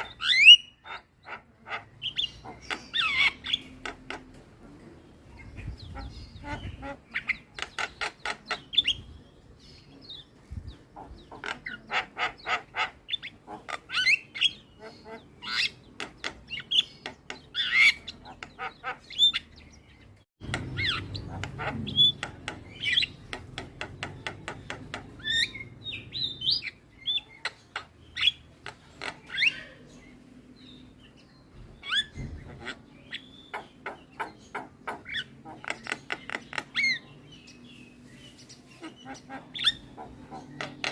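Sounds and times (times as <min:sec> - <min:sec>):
bird whistles and squawks: 0:00.0 - 0:03.8
mynas chattering calls: 0:00.0 - 0:04.4, 0:05.3 - 0:09.1, 0:11.0 - 0:19.8, 0:20.4 - 0:30.2, 0:31.8 - 0:37.6, 0:38.5 - 0:40.9.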